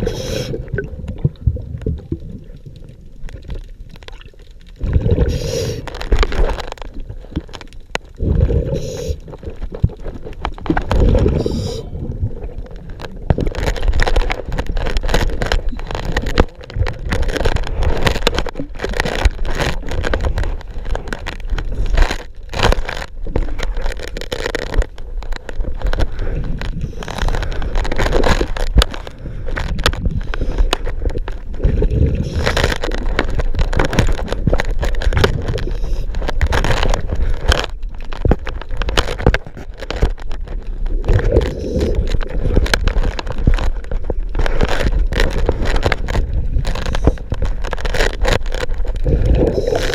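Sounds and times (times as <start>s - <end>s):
diver breathing underwater: 0.0s - 0.8s, 5.0s - 6.0s, 8.2s - 9.2s, 10.9s - 12.2s
bubbles gurgling: 0.0s - 6.5s, 8.1s - 10.0s, 10.6s - 21.9s, 31.2s - 36.0s, 48.5s - 49.9s.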